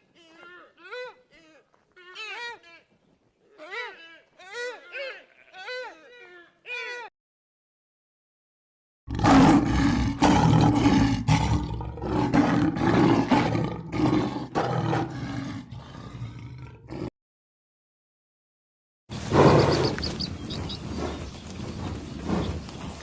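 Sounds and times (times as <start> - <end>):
large animal roaring: 9.1 - 17.1.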